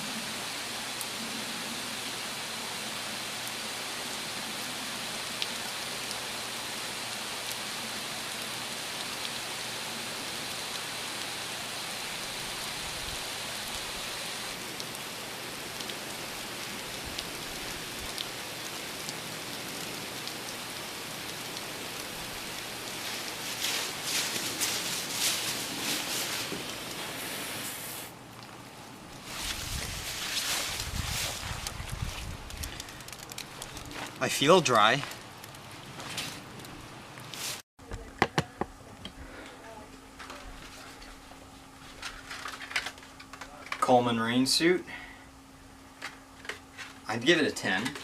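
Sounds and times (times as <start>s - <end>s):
hose spray hitting rain suit: 15.8s - 28.2s, 29.2s - 35.2s, 37.3s - 37.6s.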